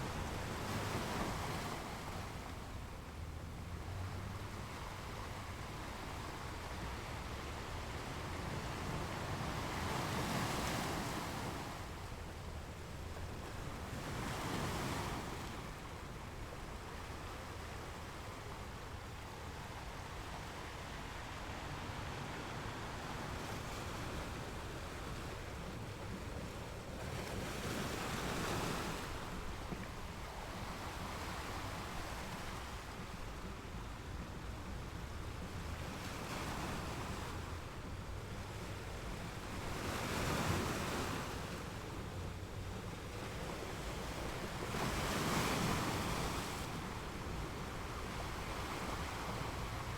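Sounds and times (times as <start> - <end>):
ocean surf: 0.0 - 34.4, 35.3 - 49.9.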